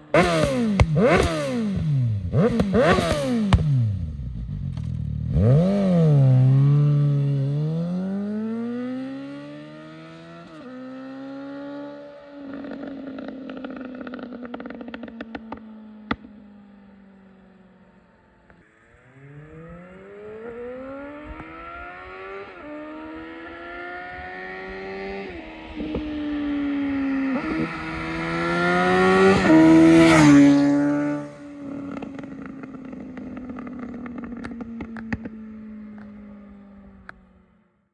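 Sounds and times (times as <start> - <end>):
motorcycle engine revving hard: 0.0 - 15.2, 19.1 - 35.3
exhaust popping and crackling: 0.1 - 5.8.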